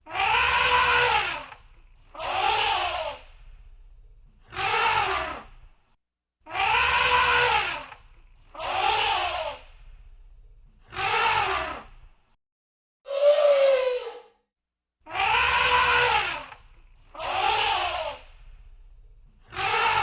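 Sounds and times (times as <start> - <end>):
elephant trumpeting: 0.1 - 1.4, 6.6 - 7.8, 15.2 - 16.5.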